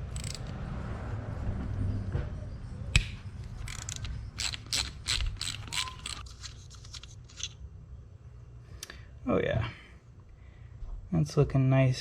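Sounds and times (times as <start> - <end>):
hand tool clicking and scraping: 0.0 - 0.6, 3.0 - 7.5.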